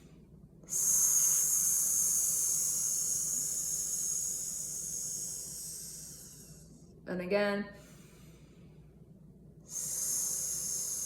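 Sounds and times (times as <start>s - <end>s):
woman exhaling through teeth: 0.7s - 6.8s, 9.7s - 11.0s.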